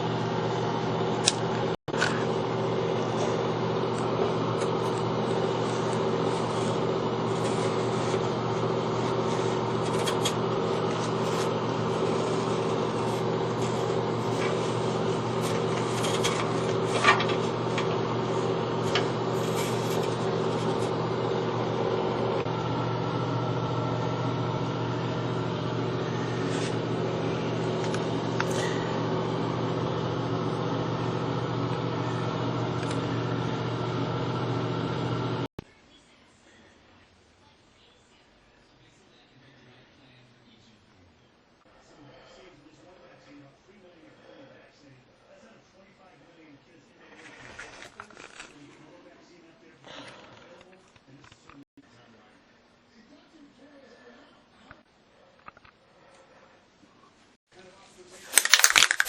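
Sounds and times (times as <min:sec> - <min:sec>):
motor hum: 0:00.0 - 0:35.5
light scrapes and clicks: 0:03.1 - 0:21.0, 0:47.1 - 0:48.8.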